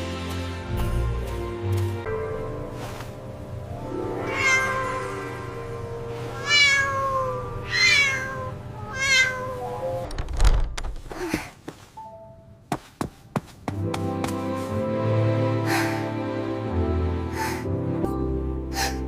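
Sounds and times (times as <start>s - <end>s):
soft background music: 0.0s - 10.1s, 11.8s - 19.0s
kitten meowing: 4.3s - 5.1s, 6.3s - 9.6s.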